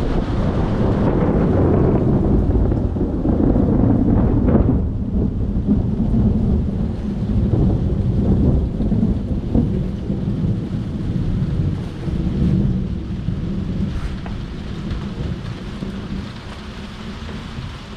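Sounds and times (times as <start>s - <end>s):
rain falling: 0.0s - 17.9s
thunder rumbling: 0.0s - 17.9s.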